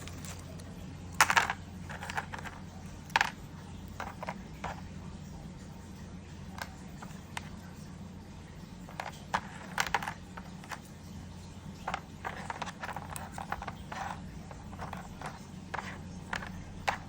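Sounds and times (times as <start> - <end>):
wood pieces knocking together: 1.2 - 3.4, 9.0 - 10.8.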